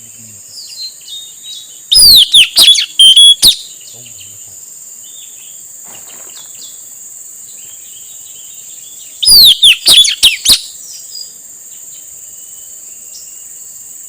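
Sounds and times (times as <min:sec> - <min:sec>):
faint chirps: 0:00.0 - 0:14.0
insect drone: 0:00.0 - 0:14.0
parrot calling sharp high notes: 0:01.9 - 0:03.6, 0:09.2 - 0:10.5.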